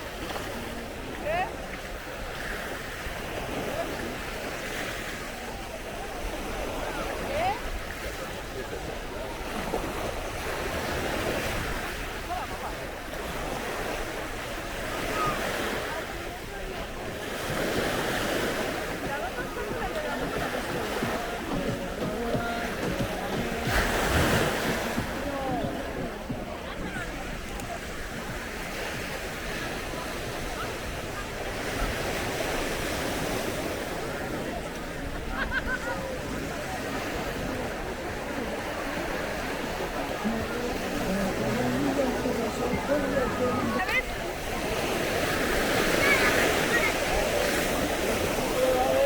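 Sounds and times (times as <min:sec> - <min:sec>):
sea waves washing onto beach: 0:00.0 - 0:49.0.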